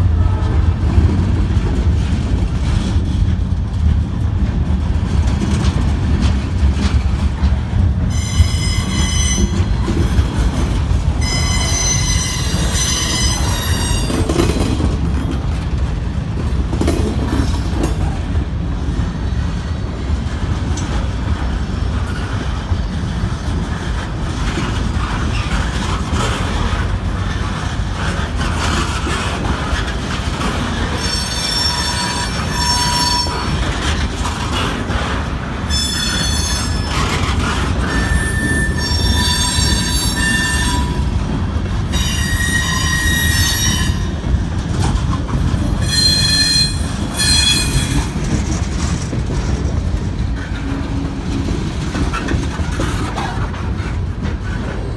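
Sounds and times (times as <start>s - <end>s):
train wheels rumbling on rails: 0.0s - 54.9s
train wheels squealing: 8.1s - 10.2s, 11.2s - 14.6s, 30.9s - 33.9s, 35.7s - 41.2s, 41.9s - 44.2s, 45.7s - 48.2s.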